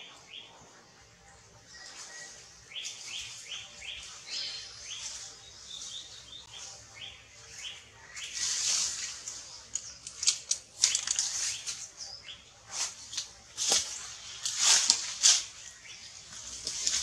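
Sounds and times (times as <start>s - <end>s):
bird chirping: 0.0s - 14.5s.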